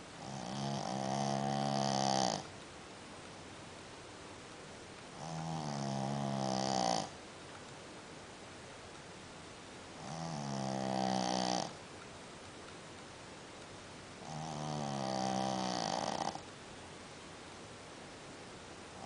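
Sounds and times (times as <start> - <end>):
dog snoring: 0.2 - 2.5, 5.2 - 7.2, 10.0 - 11.8, 14.2 - 16.5.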